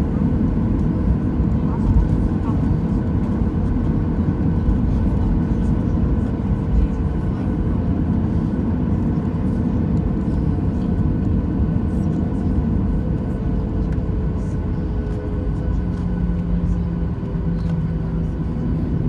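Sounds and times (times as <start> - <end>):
jet engine rumble in cabin: 0.0 - 19.0.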